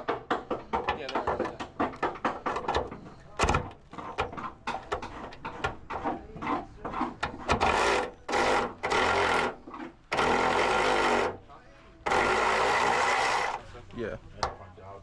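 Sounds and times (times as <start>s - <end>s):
electric ratchet buzzing: 7.7s - 11.4s, 12.1s - 13.6s.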